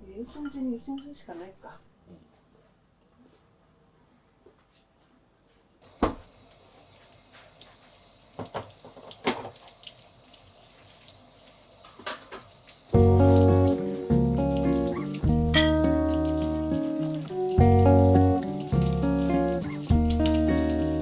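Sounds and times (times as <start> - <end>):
background music: 13.0 - 21.0.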